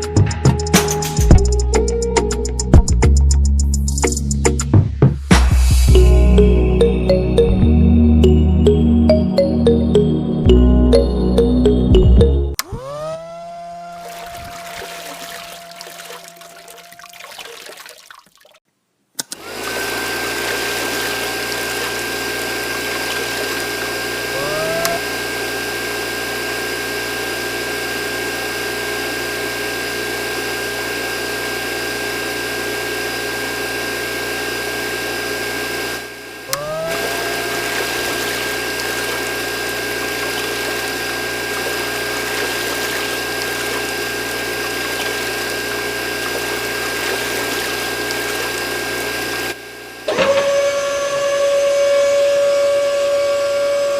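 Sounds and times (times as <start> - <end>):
short rising whine: 12.5 - 17.1, 21.1 - 26.5, 34.9 - 53.9
electric water pump running: 12.6 - 18.0, 19.2 - 53.9
water flowing: 13.9 - 18.6, 19.7 - 25.0, 36.6 - 49.6.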